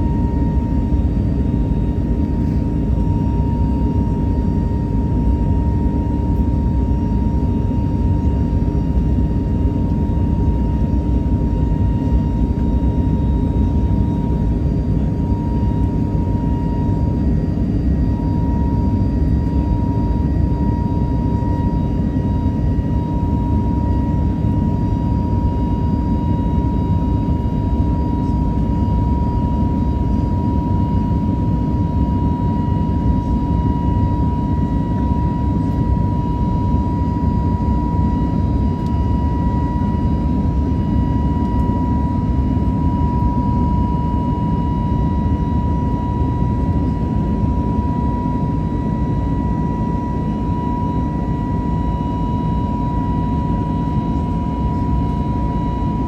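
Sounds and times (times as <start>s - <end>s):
jet engine cabin rumble: 0.0s - 56.0s
thin steady whine: 0.0s - 56.0s.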